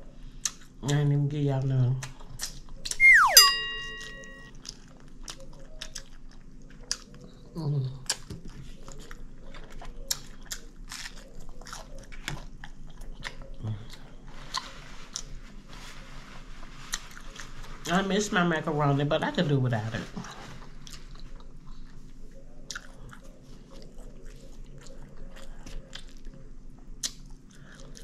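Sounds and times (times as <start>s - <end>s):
person chewing: 2.0s - 15.4s, 20.6s - 28.0s.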